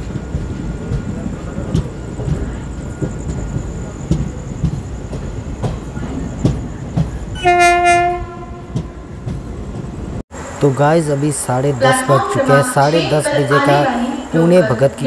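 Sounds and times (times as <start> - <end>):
train wheels clattering over rail joints: 0.0 - 10.2
train horn blast: 7.4 - 8.9.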